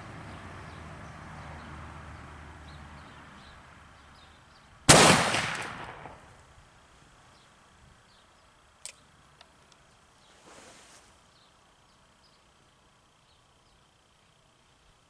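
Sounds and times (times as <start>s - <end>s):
revolver gunshot with echo: 4.9s - 6.3s.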